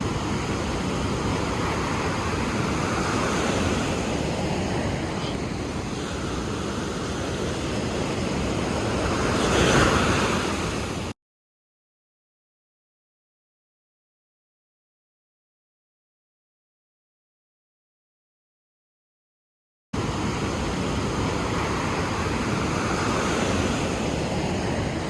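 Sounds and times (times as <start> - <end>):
ocean waves washing in: 0.0 - 11.2, 20.0 - 25.0.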